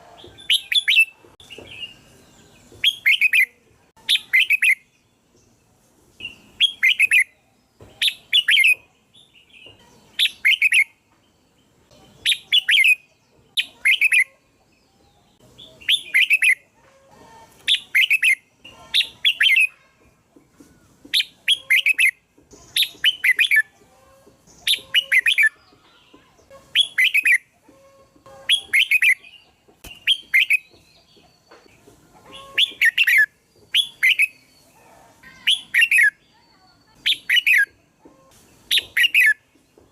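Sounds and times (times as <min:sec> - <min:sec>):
bird singing whistled phrases: 0:10.2 - 0:10.9, 0:15.8 - 0:16.6, 0:17.7 - 0:18.4, 0:21.2 - 0:22.2, 0:24.7 - 0:25.6, 0:26.7 - 0:27.4, 0:32.4 - 0:34.5, 0:35.4 - 0:36.2, 0:36.9 - 0:37.7, 0:38.7 - 0:39.4.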